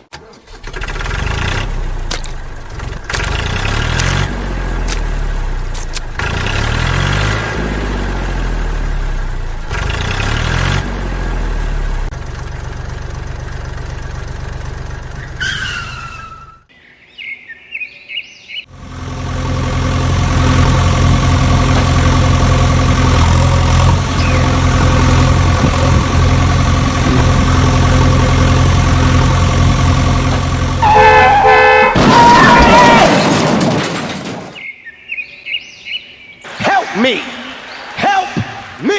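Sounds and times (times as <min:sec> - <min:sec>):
engine humming steadily: 0:00.0 - 0:16.7, 0:18.6 - 0:32.0
engine revving: 0:00.4 - 0:16.0, 0:18.7 - 0:32.2
birds chirping: 0:15.0 - 0:18.7, 0:24.0 - 0:25.0, 0:34.5 - 0:38.9.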